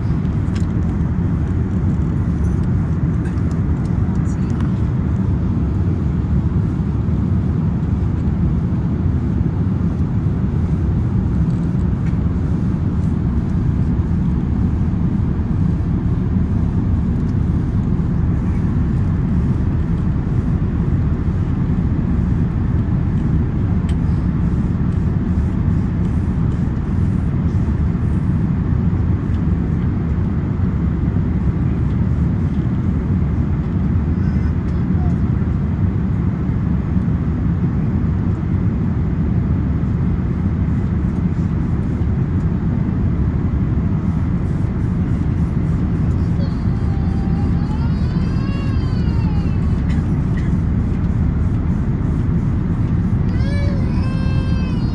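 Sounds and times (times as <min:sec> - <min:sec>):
airplane cabin engine rumble: 0:00.0 - 0:54.9
airflow past fuselage: 0:05.1 - 0:28.2.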